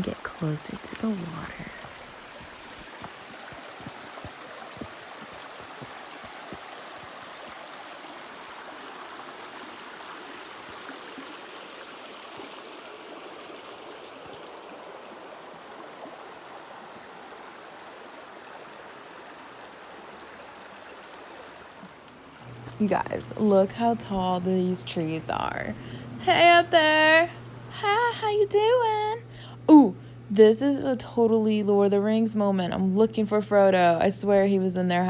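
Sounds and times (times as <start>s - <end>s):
creek water rushing: 0.0s - 22.7s.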